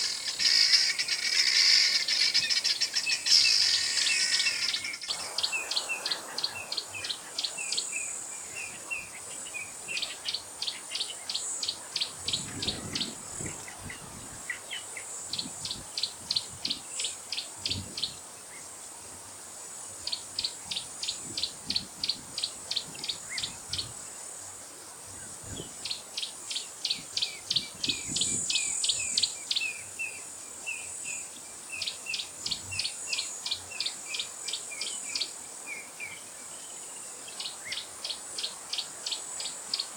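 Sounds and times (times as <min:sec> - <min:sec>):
high insect buzz: 0:00.0 - 0:09.7.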